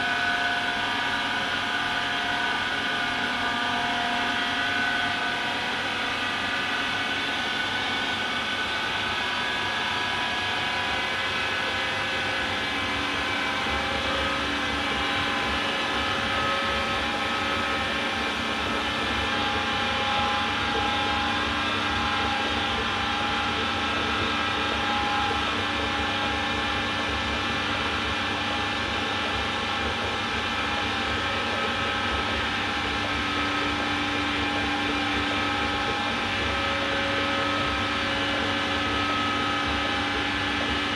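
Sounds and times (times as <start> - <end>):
washer-dryer running: 12.2 - 40.9.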